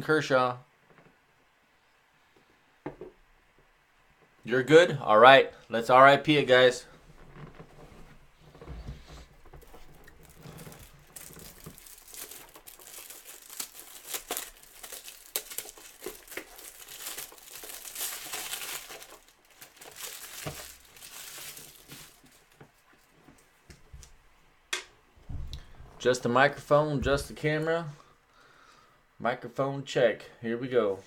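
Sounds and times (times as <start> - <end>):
plastic wrap crackling: 7.2 - 24.1.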